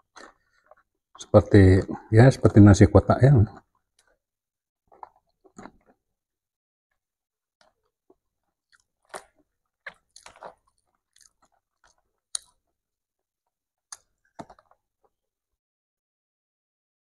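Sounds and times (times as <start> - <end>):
person chewing with smacking: 0.0 - 1.3, 3.5 - 4.2, 4.8 - 6.0, 7.6 - 15.2.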